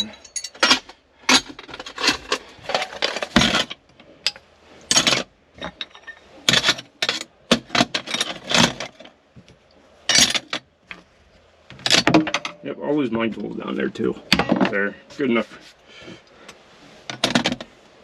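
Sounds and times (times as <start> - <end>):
metal hand tools clanking: 0.0 - 3.6, 10.1 - 10.5.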